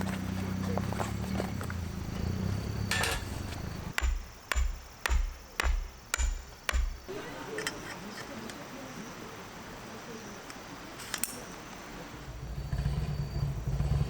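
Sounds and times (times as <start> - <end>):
sharp knocks with dull thump: 3.9 - 7.1.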